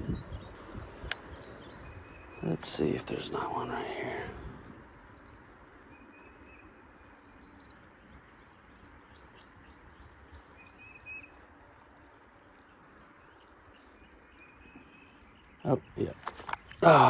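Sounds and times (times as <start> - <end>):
high bird calls: 0.0 - 11.5
steady low hiss: 0.0 - 17.0.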